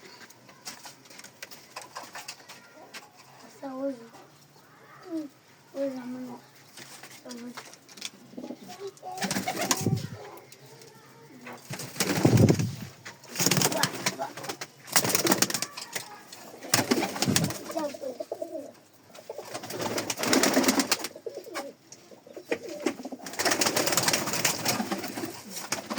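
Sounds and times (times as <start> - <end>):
rustling and scuffling: 0.0 - 4.6, 5.2 - 18.7
pigeons cooing: 8.1 - 10.6, 11.6 - 25.9.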